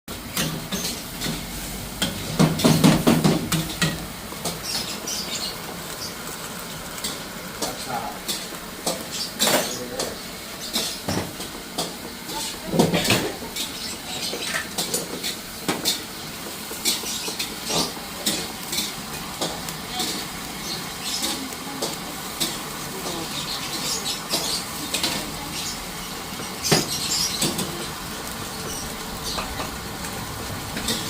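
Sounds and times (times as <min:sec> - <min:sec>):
metal utensils clinking on cookware: 0:16.8 - 0:22.6.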